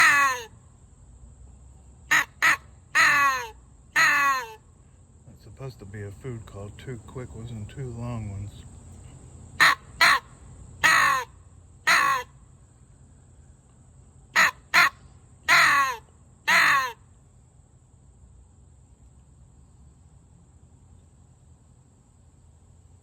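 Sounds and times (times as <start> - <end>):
crow call caws: 0.0 - 0.6, 2.1 - 4.7, 9.6 - 12.4, 14.4 - 17.1.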